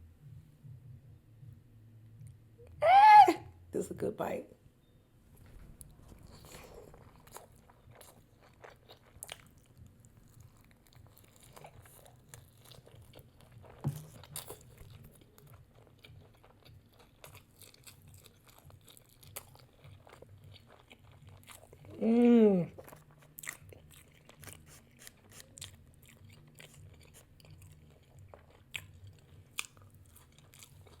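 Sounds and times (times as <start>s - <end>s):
crunchy chewing: 5.8s - 22.0s, 22.7s - 31.0s.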